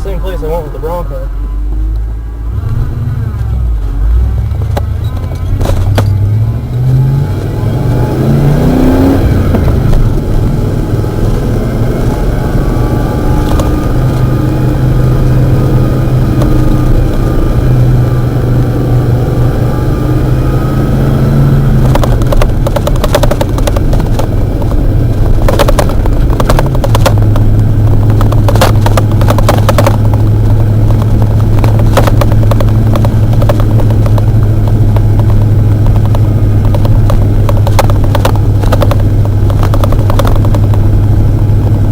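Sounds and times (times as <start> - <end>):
truck engine revving: 0.0 - 41.9
crackles: 21.7 - 41.9.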